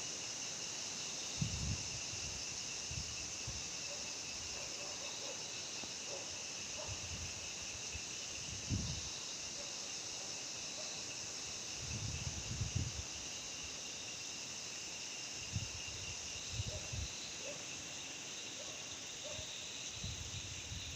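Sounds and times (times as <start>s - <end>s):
insects trilling: 0.0s - 20.9s.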